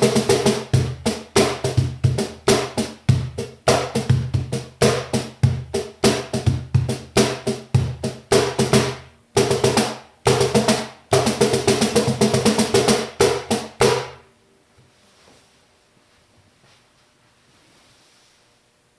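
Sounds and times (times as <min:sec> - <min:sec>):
cajon played by hand: 0:00.0 - 0:14.2.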